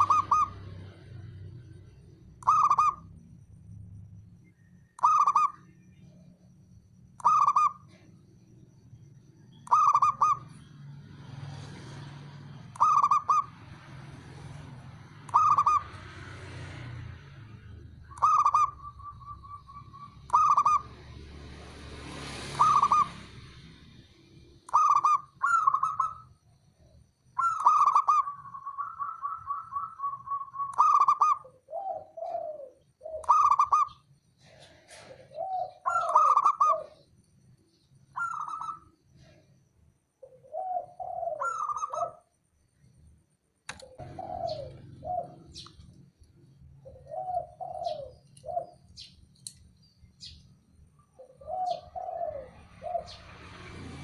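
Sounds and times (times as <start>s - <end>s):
doves cooing: 0.0s - 3.1s, 11.3s - 21.4s, 22.4s - 23.9s, 24.7s - 26.3s, 27.4s - 37.1s, 38.2s - 39.6s, 40.2s - 42.3s, 43.7s - 49.1s, 51.0s - 54.0s.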